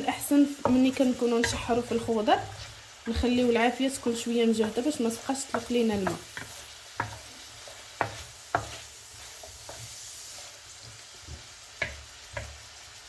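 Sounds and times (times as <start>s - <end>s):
vegetables sizzling in oil: 0.0s - 13.0s
utensil knocking against pan: 11.3s - 12.6s.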